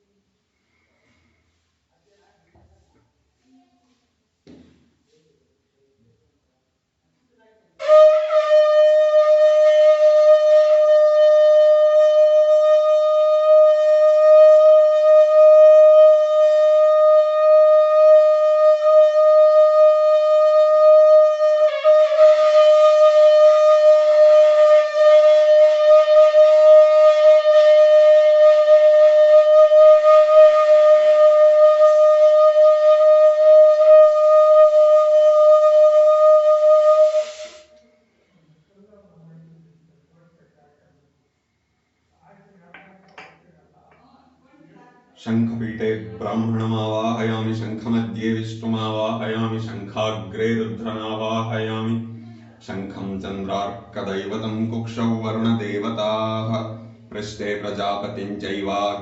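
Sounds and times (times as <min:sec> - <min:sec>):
conch shell blown: 0:07.8 - 0:38.1.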